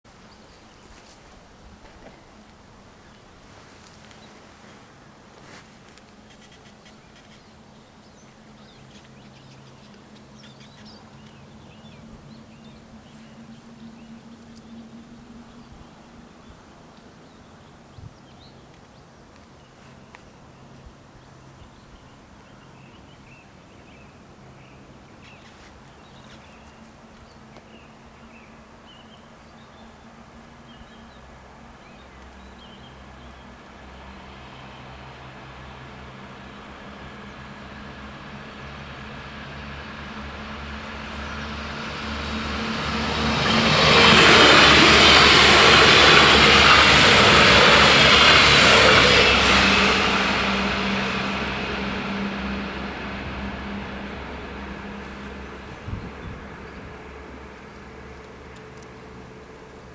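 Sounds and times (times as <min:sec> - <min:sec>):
small birds chirping: 0:00.1 - 0:34.0.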